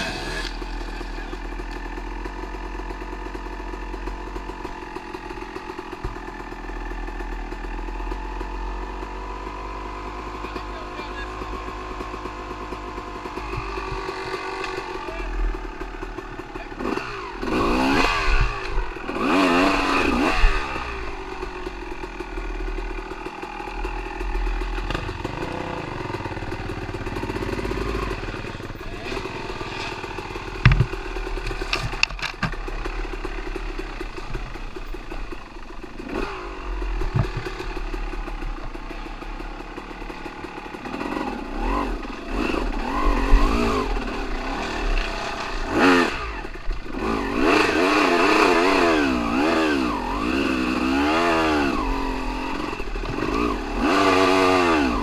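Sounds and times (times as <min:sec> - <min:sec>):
dirt bike engine revving: 0:00.0 - 0:55.0
rattling: 0:11.4 - 0:47.2
sharp knocks: 0:30.6 - 0:31.0.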